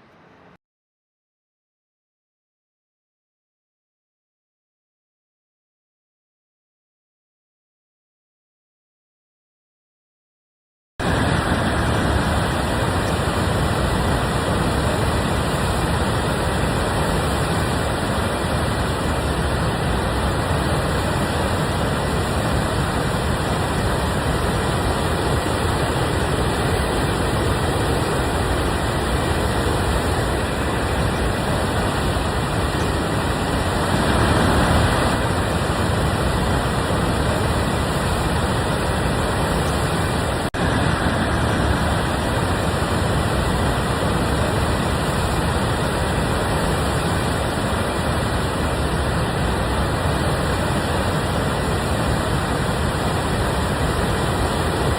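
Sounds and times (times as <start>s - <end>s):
river rushing over waterfall: 11.0s - 54.9s.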